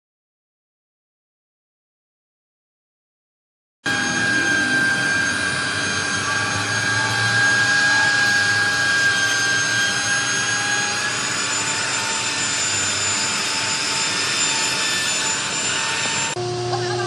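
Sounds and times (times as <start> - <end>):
power tool whining: 3.9 - 17.0.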